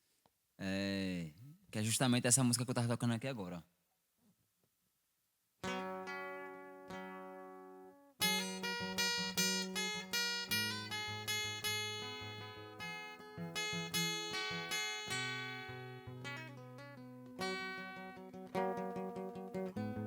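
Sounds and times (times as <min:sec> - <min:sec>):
acoustic guitar strumming: 0:05.6 - 0:20.0.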